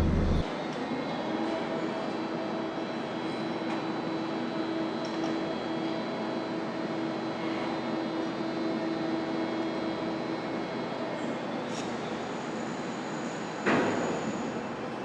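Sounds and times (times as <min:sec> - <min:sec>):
constant hum: 0:00.0 - 0:00.5
electric train rumbling: 0:00.0 - 0:00.5.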